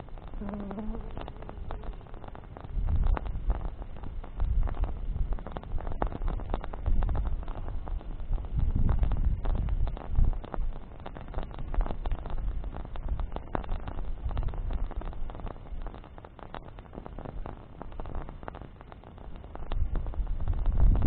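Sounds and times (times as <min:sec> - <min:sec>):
campfire crackling: 0:00.0 - 0:21.0
wind rumble on microphone: 0:00.0 - 0:21.0.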